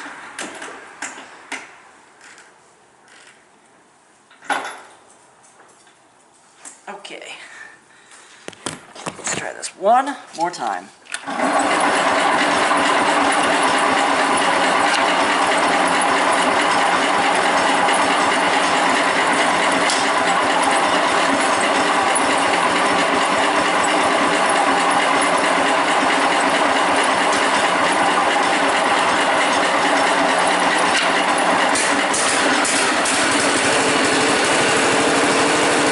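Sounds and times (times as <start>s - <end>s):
engine cranking on starter: 11.2s - 35.9s.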